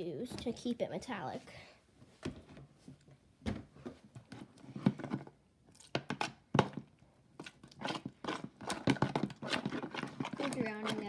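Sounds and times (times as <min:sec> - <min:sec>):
sticky slime being stirred: 0:05.7 - 0:11.0.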